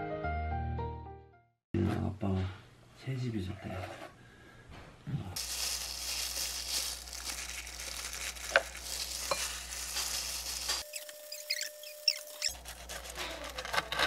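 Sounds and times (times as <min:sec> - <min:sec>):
food sizzling in a pan: 0:05.4 - 0:12.6.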